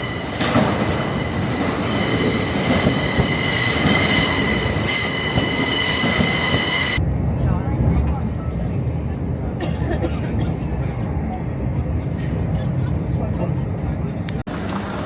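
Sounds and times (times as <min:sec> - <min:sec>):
train wheels squealing on rails: 0:00.0 - 0:07.0
rumble of moving train: 0:00.0 - 0:15.0.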